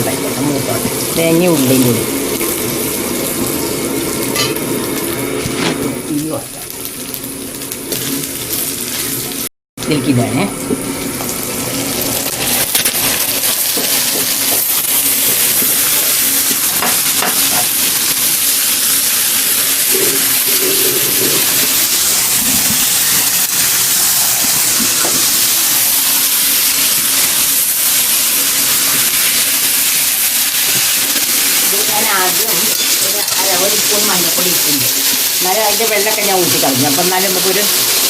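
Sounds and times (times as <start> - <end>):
chicken sizzling in hot oil: 0.0 - 38.0.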